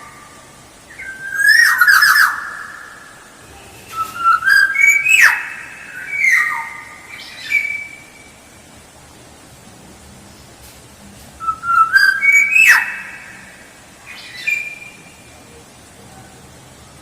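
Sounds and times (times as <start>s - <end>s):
oriole whistled song: 0.9s - 2.4s, 3.9s - 8.3s, 11.4s - 13.5s.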